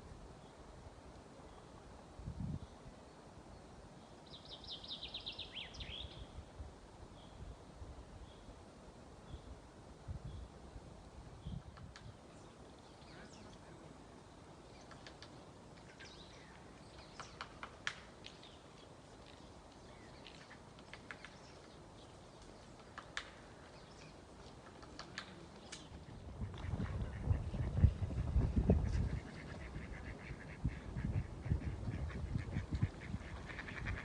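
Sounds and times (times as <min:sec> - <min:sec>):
songbird chirps and calls: 0:02.4 - 0:06.5, 0:11.4 - 0:27.9.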